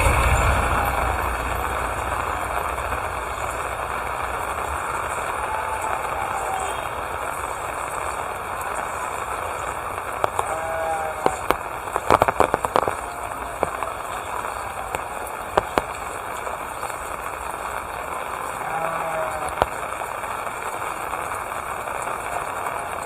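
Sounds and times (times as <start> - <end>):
faint call: 0.0 - 23.0
rain falling: 0.0 - 23.0
sharp taps and clicks: 10.2 - 10.6, 11.2 - 14.2, 14.9 - 16.4.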